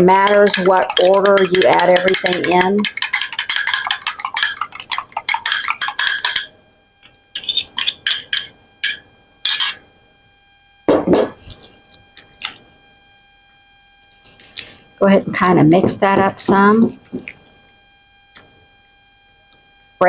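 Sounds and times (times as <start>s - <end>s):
fork scraping a mixing bowl: 0.0s - 6.5s, 7.4s - 8.5s
utensil clinking on bowl: 0.0s - 6.5s, 7.4s - 9.8s.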